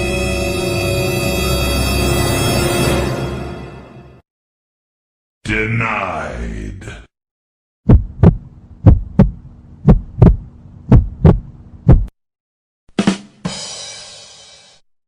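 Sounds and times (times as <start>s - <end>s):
heartbeat thumps: 7.8s - 12.1s.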